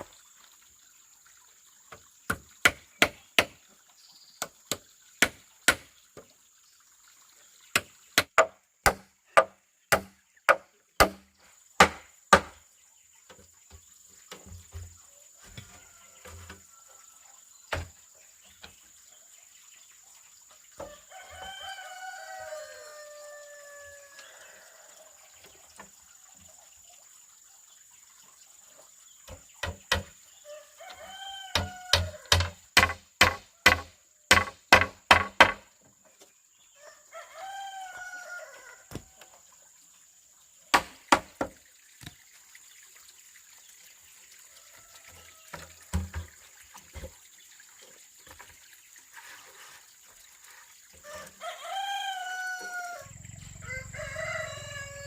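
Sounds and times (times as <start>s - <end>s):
rooster crowing: 20.8s - 25.1s, 30.4s - 32.3s, 36.8s - 39.1s, 51.0s - 55.0s
sharp knocks: 31.6s - 35.7s.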